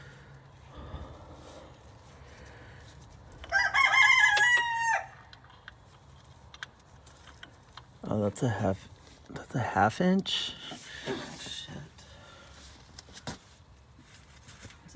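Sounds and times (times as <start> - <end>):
rooster crowing: 3.4 - 5.3.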